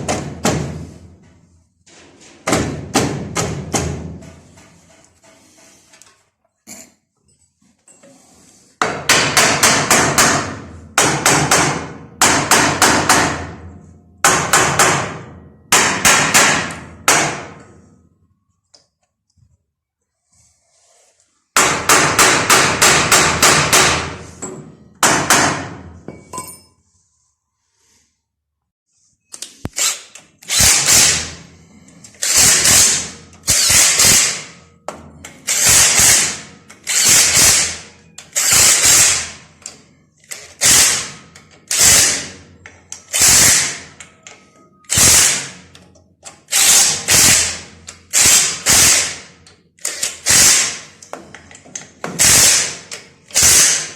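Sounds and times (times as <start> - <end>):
power tool knocking bursts: 52.1 - 52.7.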